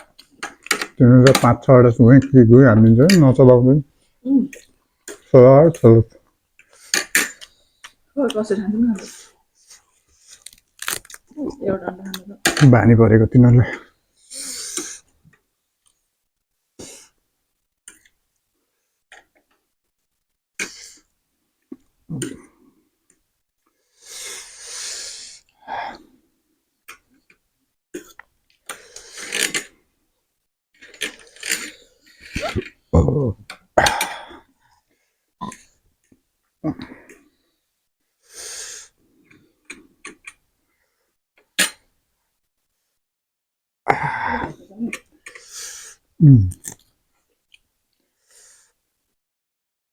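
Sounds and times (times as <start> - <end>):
hissing breath: 23.8 - 26.2
people eating noodles: 31.4 - 34.4, 46.2 - 46.8
hard breathing: 33.3 - 35.2.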